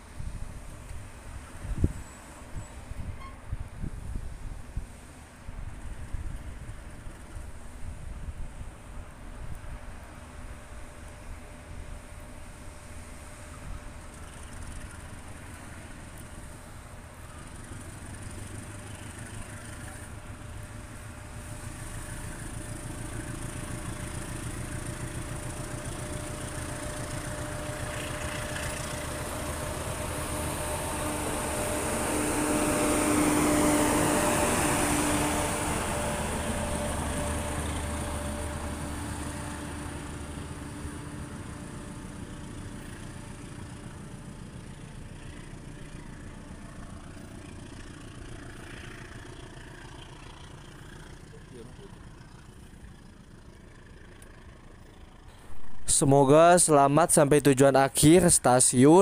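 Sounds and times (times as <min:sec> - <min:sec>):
train wheel and track noise: 0:00.0 - 0:40.6
diesel engine hum: 0:00.0 - 0:59.0.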